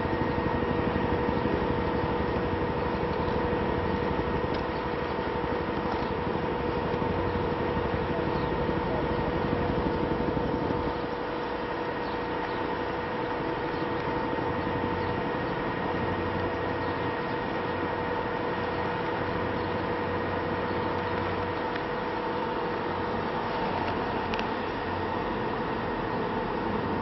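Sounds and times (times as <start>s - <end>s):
vehicle engine rumble with whine: 0.0s - 27.0s.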